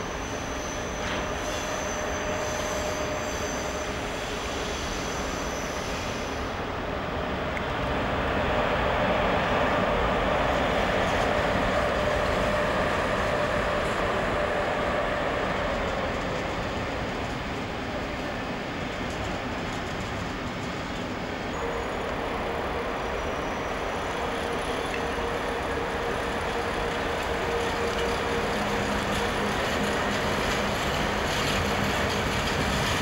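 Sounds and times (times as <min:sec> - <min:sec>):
train rolling through station: 0:00.0 - 0:33.0.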